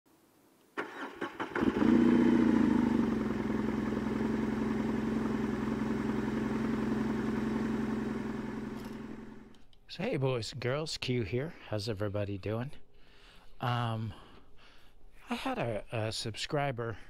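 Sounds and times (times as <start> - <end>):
starter motor clunks: 0.8 - 4.2, 8.2 - 9.5
motorcycle engine idling: 1.6 - 9.5.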